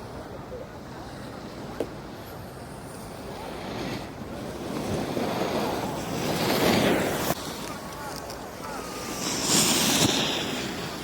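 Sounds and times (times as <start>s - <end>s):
wind on microphone: 0.0s - 11.0s
ski edges scraping packed snow: 2.6s - 11.0s.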